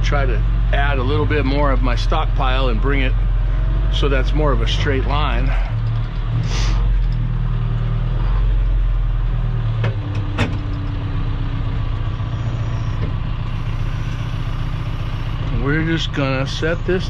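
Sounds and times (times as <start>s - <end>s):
machine engine running: 10.0s - 17.0s.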